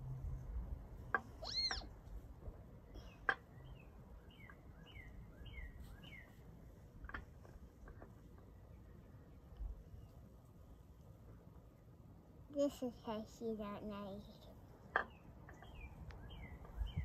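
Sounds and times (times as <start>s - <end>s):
songbird singing: 1.1s - 2.0s, 2.7s - 7.5s, 14.8s - 17.0s.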